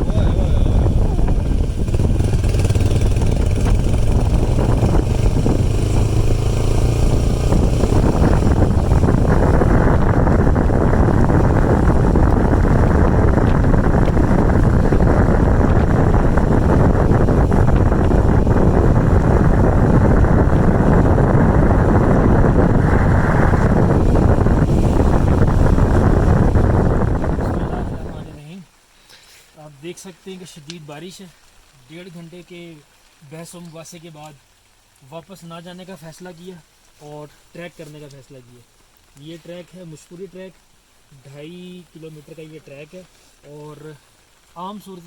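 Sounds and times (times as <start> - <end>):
motorcycle engine running: 0.0 - 28.4
wind noise on microphone: 0.0 - 28.5.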